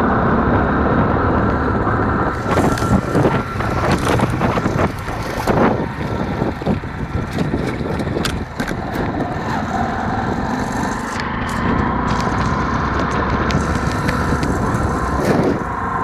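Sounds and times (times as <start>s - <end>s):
motorcycle engine running: 0.0s - 16.0s
road and traffic noise: 0.0s - 16.0s.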